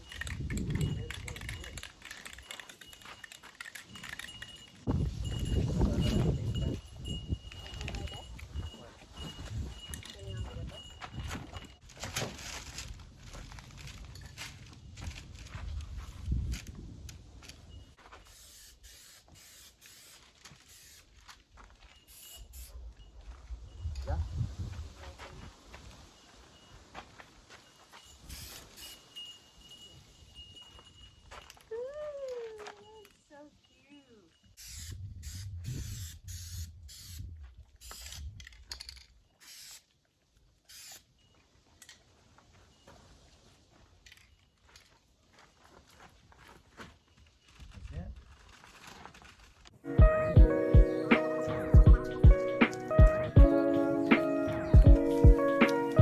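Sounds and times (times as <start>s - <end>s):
spray paint hissing: 18.3s - 21.1s, 22.1s - 22.7s, 28.3s - 29.0s, 34.6s - 38.2s, 39.4s - 39.9s, 40.7s - 41.1s.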